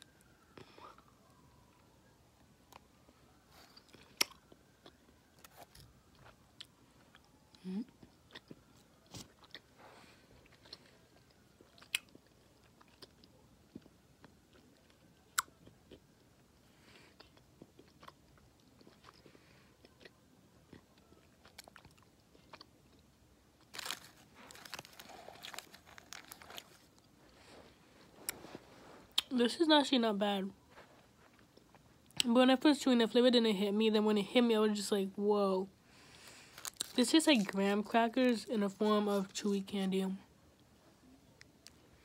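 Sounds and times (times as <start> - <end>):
person chewing candy: 3.6 - 27.5, 31.3 - 32.3, 35.9 - 37.7.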